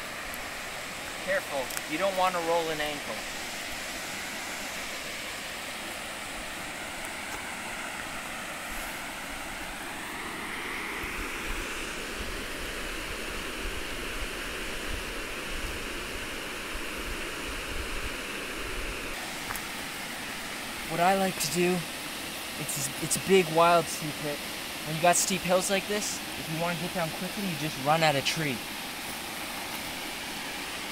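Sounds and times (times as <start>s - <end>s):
waterfall rushing: 0.0s - 13.6s, 19.0s - 30.9s.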